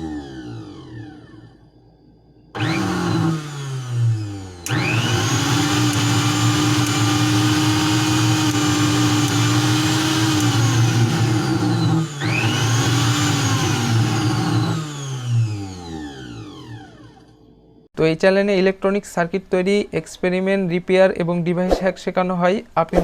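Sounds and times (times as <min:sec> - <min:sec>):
blender motor running: 0:00.0 - 0:01.7, 0:02.6 - 0:17.5.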